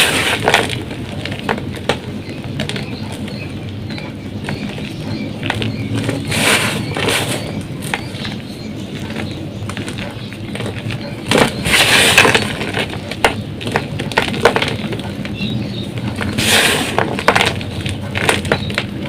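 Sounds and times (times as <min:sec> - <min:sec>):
chalk blocks crunching: 0:00.0 - 0:19.0.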